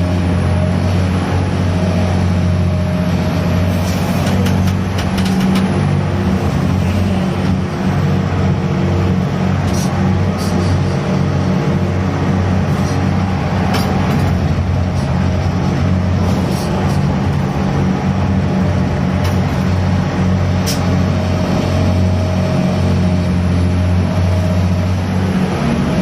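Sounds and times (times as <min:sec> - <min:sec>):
crane diesel engine running: 0:00.0 - 0:26.0.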